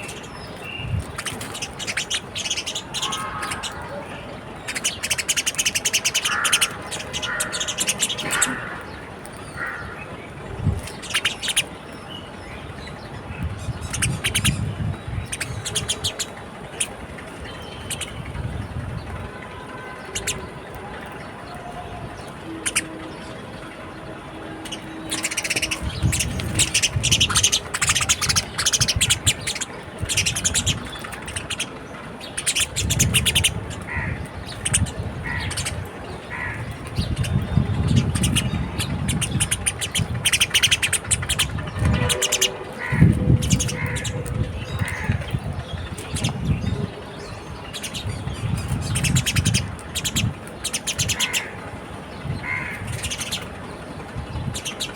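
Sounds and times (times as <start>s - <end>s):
birds chirping: 0.0s - 54.9s
low rumbling noise: 0.0s - 54.9s.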